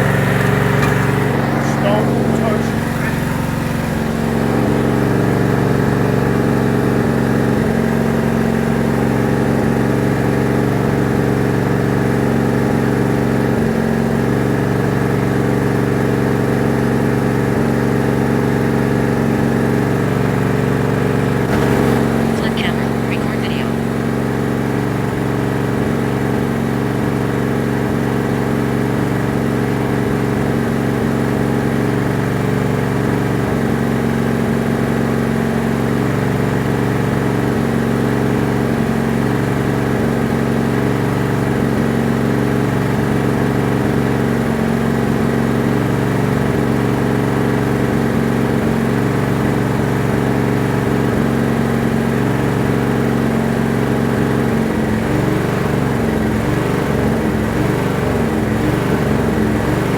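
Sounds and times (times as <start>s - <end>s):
tractor engine droning: 0.0s - 6.7s, 21.0s - 24.1s.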